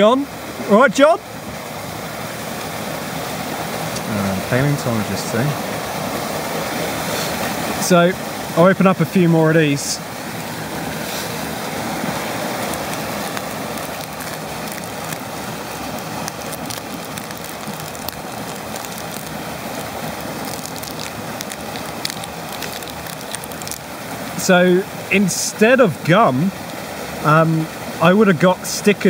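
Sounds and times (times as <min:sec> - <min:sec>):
waterfall rushing: 0:00.0 - 0:29.0
wrappers crinkling and tearing: 0:12.5 - 0:23.9.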